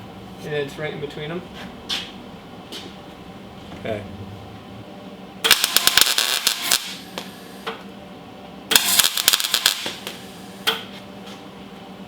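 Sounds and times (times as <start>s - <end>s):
wire-feed welder crackling: 5.4s - 7.4s, 8.7s - 10.9s.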